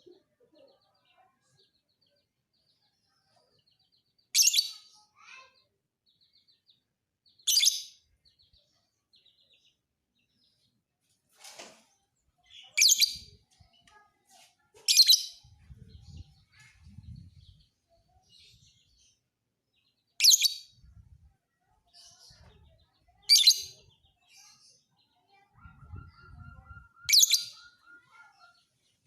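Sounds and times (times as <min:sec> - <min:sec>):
lovebird chirping: 0:25.3 - 0:28.9.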